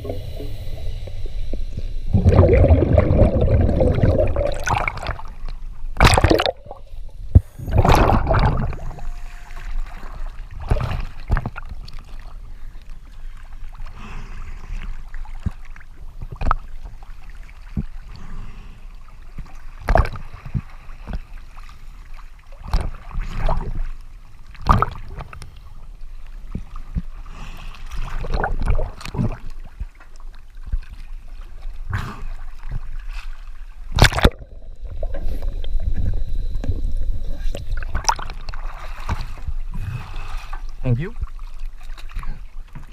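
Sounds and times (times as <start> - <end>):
low rumble: 0.0 - 11.5
water sloshing and bubbling: 0.0 - 42.9.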